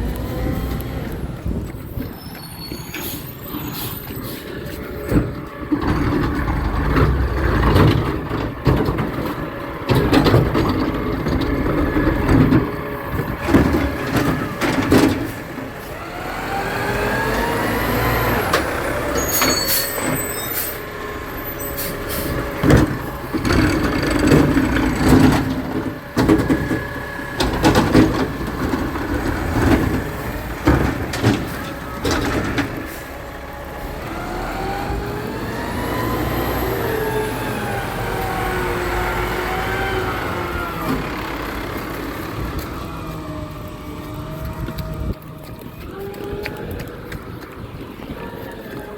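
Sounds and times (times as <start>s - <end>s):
diesel engine revving with whine: 0.0s - 48.9s
clanks and bangs: 22.4s - 33.1s.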